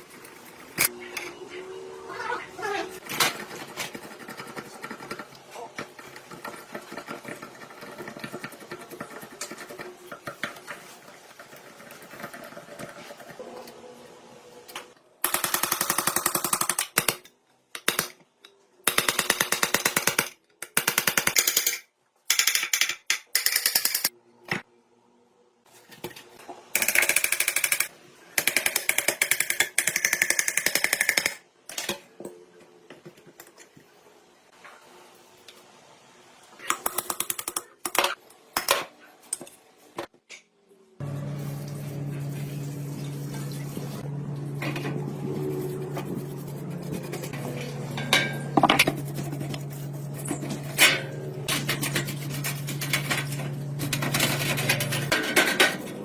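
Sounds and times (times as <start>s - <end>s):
workshop noise: 25.7s - 56.0s.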